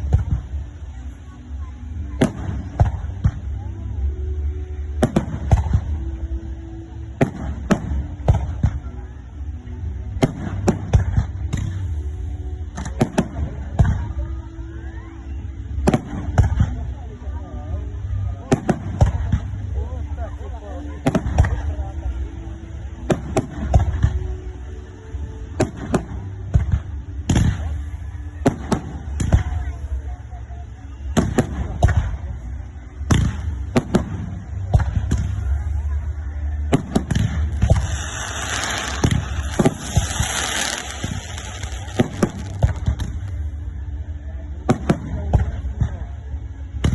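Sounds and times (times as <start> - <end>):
fireworks bangs: 36.6 - 43.5.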